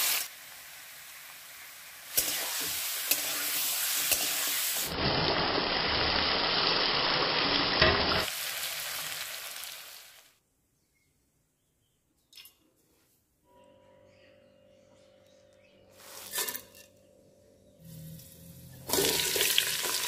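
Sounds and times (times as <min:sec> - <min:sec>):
chicken sizzling and frying: 0:00.0 - 0:10.4, 0:17.9 - 0:20.0.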